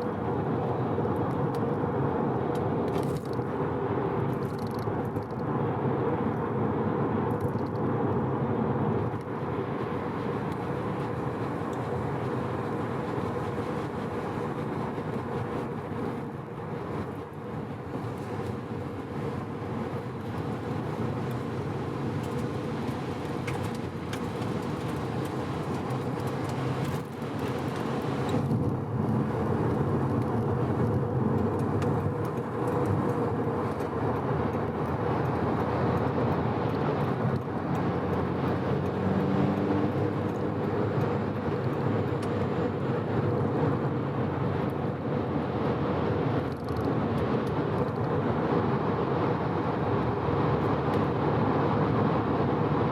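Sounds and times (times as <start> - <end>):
tyre and road noise: 0.0 - 52.9
rotary engine cruising: 17.9 - 42.8.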